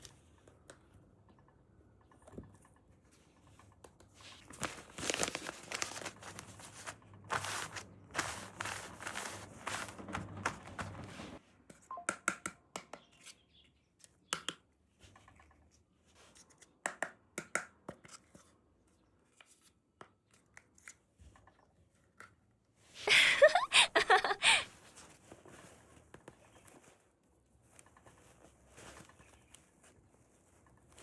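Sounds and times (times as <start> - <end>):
packaging rustling: 4.2 - 11.4.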